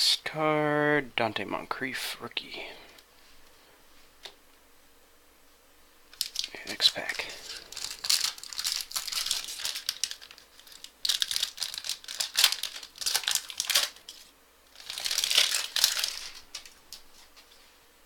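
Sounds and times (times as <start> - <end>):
wrapper crinkling and tearing: 6.1 - 17.4.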